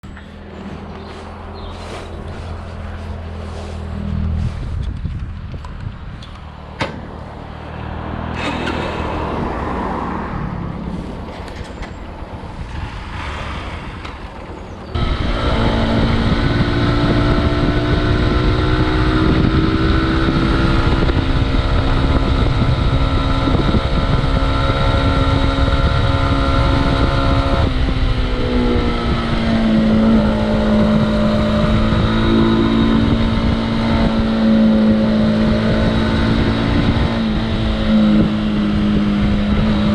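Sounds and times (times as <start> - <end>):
wind noise: 0.0 - 39.9
motorcycle engine running: 15.0 - 39.9.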